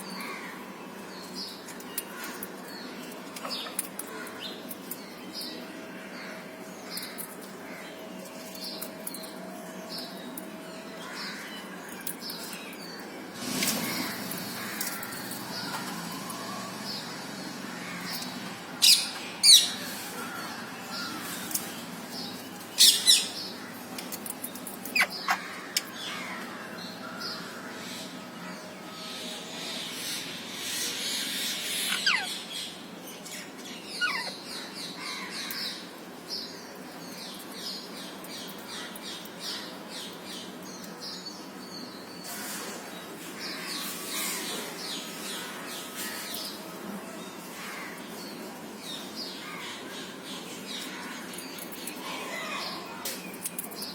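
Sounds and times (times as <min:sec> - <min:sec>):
parrots screeching and chattering: 0:18.8 - 0:21.6, 0:22.8 - 0:26.4, 0:30.6 - 0:32.5, 0:33.9 - 0:34.4.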